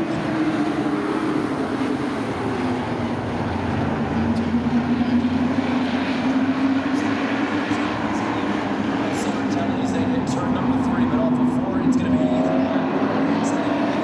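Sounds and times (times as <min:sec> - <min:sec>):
racing truck engines: 0:00.0 - 0:14.0.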